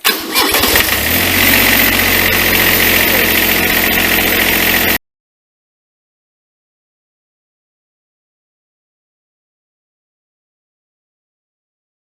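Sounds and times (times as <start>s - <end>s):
diesel engine starting and running: 0.0s - 5.0s.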